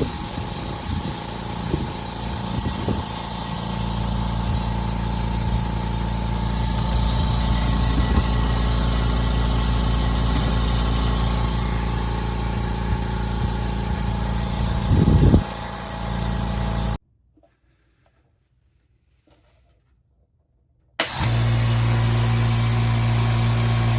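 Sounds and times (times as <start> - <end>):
air compressor running: 0.0 - 17.0, 21.0 - 23.9.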